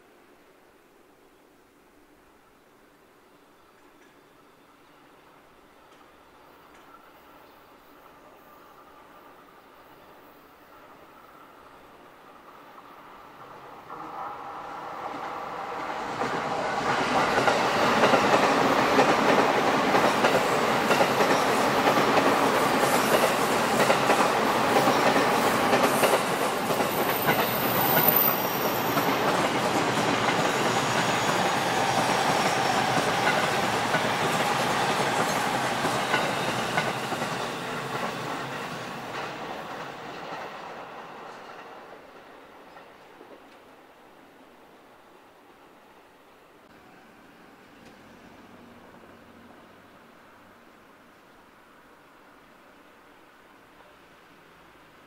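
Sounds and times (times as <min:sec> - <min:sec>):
train wheels running on rails: 0:10.7 - 0:44.0.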